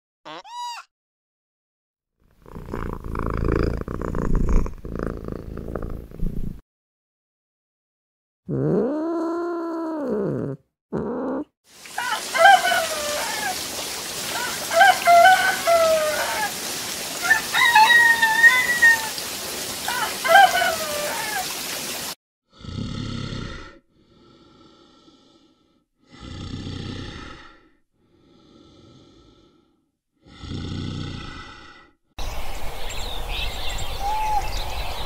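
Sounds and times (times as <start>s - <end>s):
low rough animal grunts: 2.4s - 6.6s, 22.5s - 25.0s, 26.0s - 27.7s, 30.2s - 31.9s
rain-like hiss: 11.7s - 22.2s.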